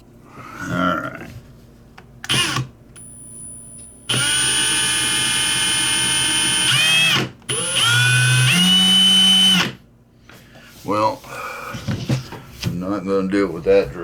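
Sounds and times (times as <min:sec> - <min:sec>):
small electric drill whining: 0:02.3 - 0:09.8.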